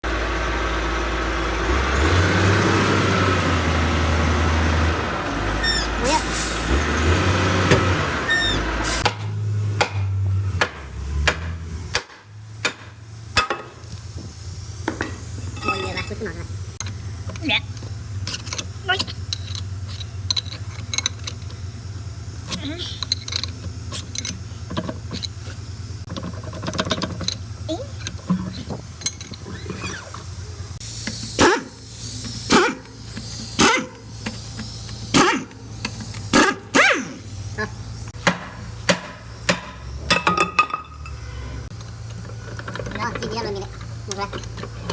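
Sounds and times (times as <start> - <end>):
engine humming: 0.0 - 44.9
sharp knocks at a wheel: 9.0 - 13.8, 38.2 - 41.0.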